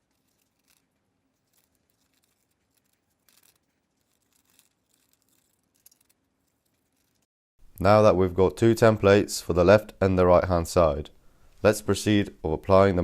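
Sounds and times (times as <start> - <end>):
scissors cutting paper: 0.0 - 7.3.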